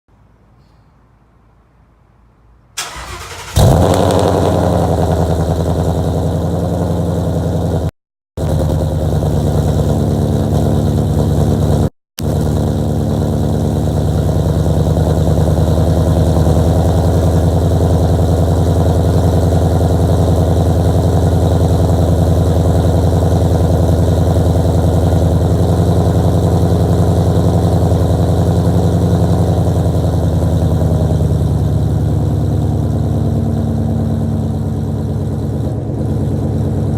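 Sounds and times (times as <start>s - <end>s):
engine cranking: 2.8s - 4.0s
car engine idling loudly: 3.6s - 36.9s.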